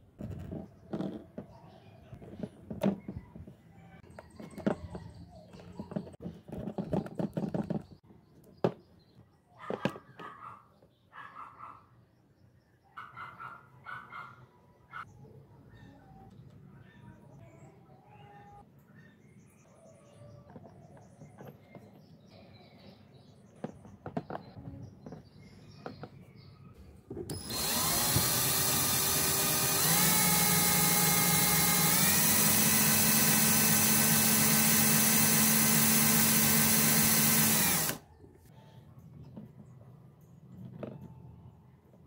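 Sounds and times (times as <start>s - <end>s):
electric motor pump whine: 27.3s - 38.0s.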